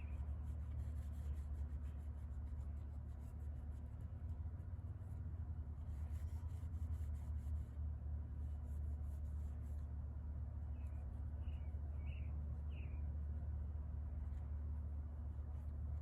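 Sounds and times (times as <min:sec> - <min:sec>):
faint scratching strokes: 0:00.0 - 0:10.0.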